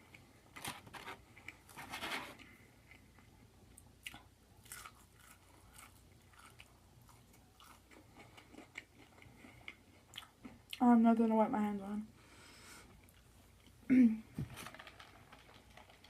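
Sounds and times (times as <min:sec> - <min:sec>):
chewing: 0:02.4 - 0:10.8.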